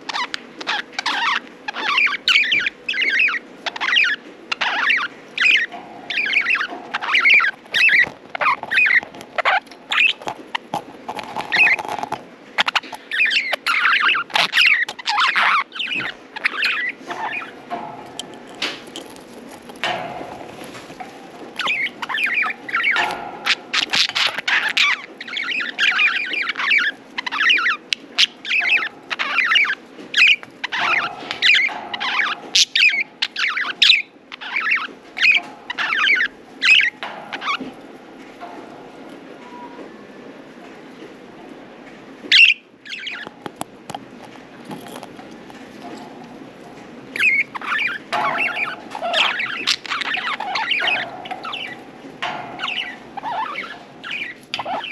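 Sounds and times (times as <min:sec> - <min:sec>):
budgerigars chirping: 0:00.0 - 0:18.8, 0:21.6 - 0:37.7, 0:42.3 - 0:43.4, 0:47.2 - 0:54.9.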